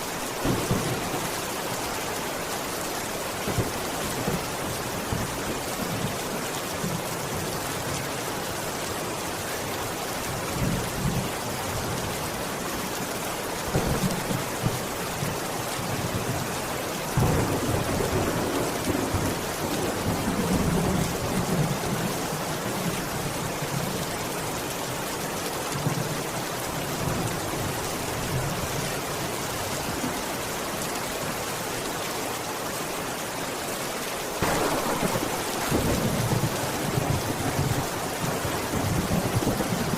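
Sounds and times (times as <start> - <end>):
steady rain falling: 0.0 - 39.9
thunder rolling: 34.4 - 39.9.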